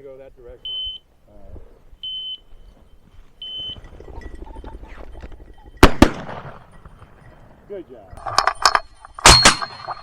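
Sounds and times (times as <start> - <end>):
short high beeps: 0.7 - 1.1, 2.0 - 5.9
shotgun shot: 5.8 - 6.6.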